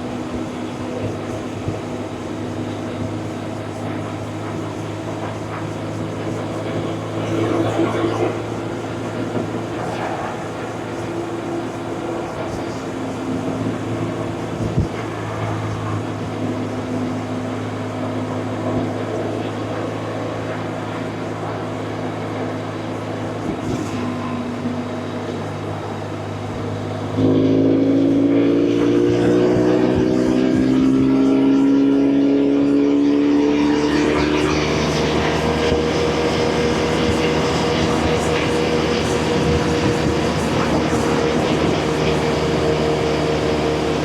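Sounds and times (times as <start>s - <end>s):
motorcycle engine cruising: 25.6s - 44.0s.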